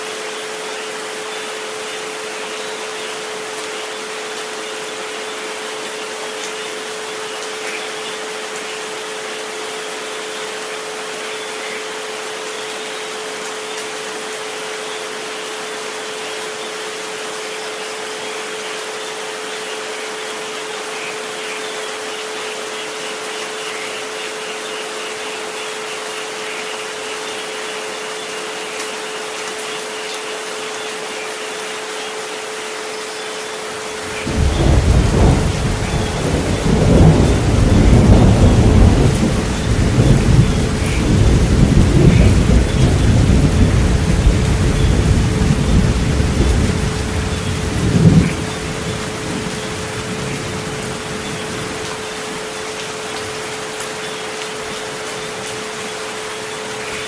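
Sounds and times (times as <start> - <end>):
steady rain hiss: 0.0 - 57.0
deep roll of thunder: 34.1 - 51.8.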